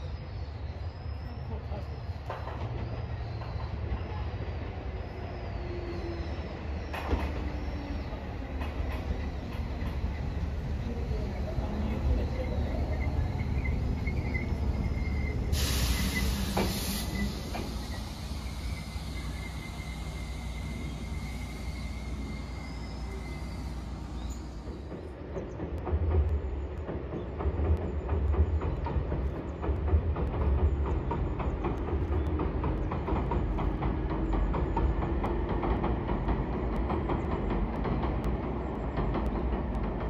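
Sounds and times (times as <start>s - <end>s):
train brake squeal: 0.0s - 10.8s, 11.7s - 25.2s
train rumbling over bridge: 0.0s - 40.0s
wheels clacking over rail joints: 6.9s - 40.0s
air hiss: 14.8s - 24.8s.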